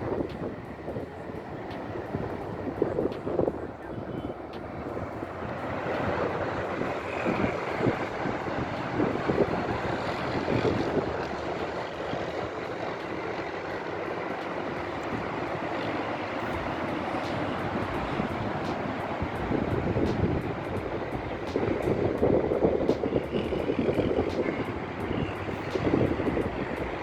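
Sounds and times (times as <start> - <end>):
motorway traffic rushing: 0.0 - 27.0.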